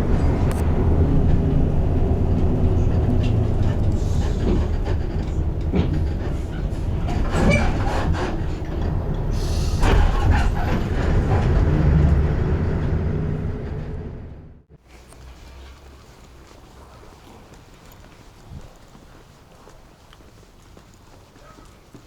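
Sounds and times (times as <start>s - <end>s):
bus body rattling and knocking: 0.0s - 14.8s
bus engine and road rumble: 0.0s - 20.0s.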